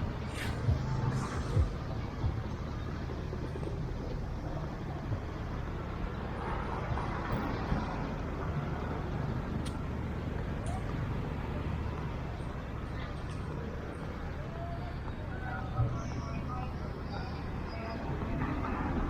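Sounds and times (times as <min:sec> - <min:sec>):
vehicle passing: 0:00.0 - 0:03.9
traffic engines rumbling: 0:00.0 - 0:19.0.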